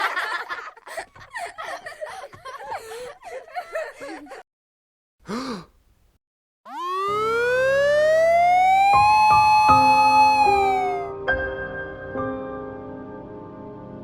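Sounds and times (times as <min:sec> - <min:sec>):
high-pitched wavering cries: 0:06.7 - 0:11.1.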